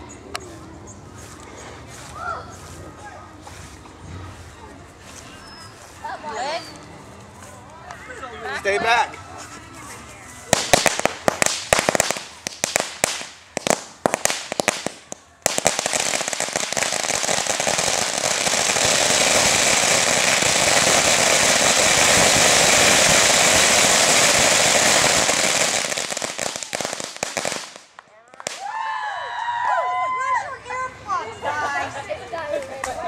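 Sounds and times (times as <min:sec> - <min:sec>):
firecrackers banging: 0:10.5 - 0:28.7.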